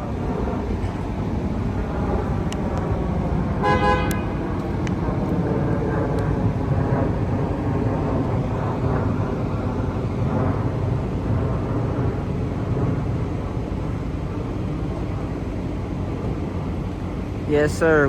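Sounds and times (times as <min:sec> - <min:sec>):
car engine rumble: 0:00.0 - 0:18.0
road noise: 0:00.0 - 0:18.0
car horn toot: 0:03.6 - 0:04.4.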